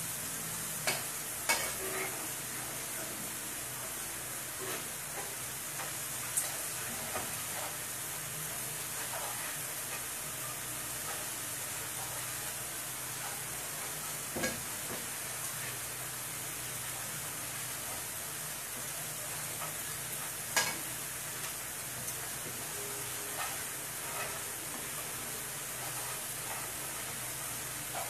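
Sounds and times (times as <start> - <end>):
paste sizzling in a frying pan: 0.0 - 28.0
spoon stirring and scraping: 21.4 - 28.0.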